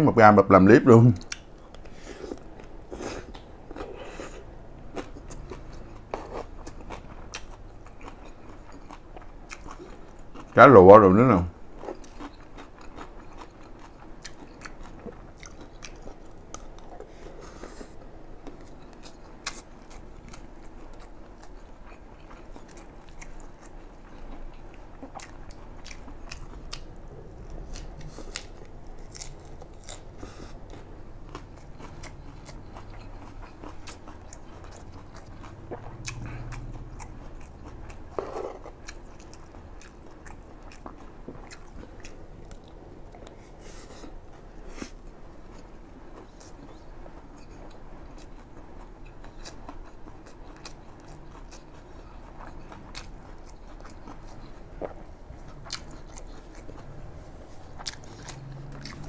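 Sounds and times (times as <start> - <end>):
person chewing crunchy food: 1.2 - 10.6, 11.6 - 59.0.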